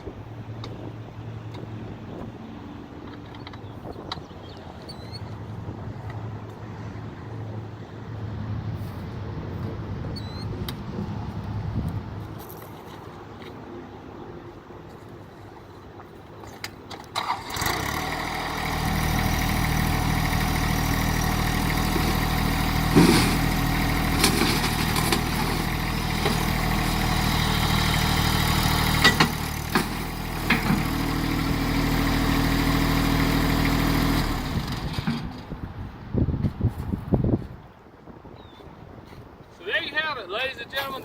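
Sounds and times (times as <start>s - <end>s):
tractor diesel engine running: 16.6s - 35.9s.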